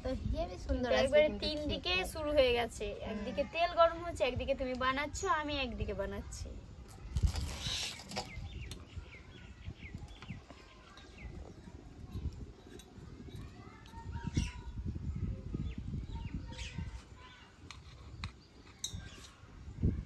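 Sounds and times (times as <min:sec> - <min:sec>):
small birds chirping: 0:00.1 - 0:20.0.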